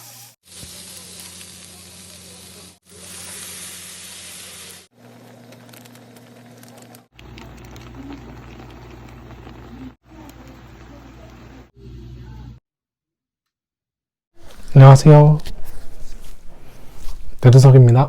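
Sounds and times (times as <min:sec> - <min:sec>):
food sizzling in a frying pan: 0:00.0 - 0:04.9.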